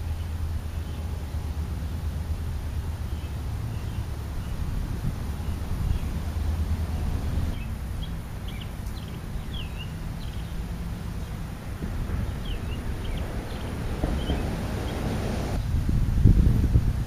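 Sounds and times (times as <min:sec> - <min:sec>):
steady low rumble: 0:00.0 - 0:17.0
small birds chirping: 0:02.9 - 0:15.6.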